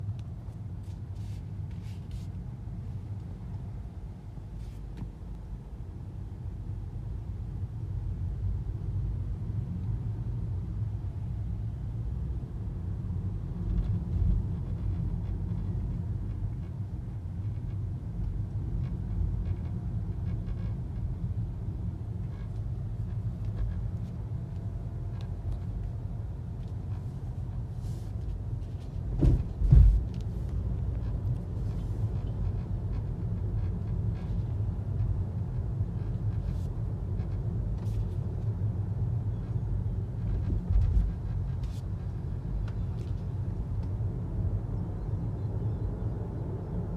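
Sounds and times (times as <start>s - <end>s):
car cabin road rumble: 0.0s - 46.9s
loud thump: 29.2s - 30.1s.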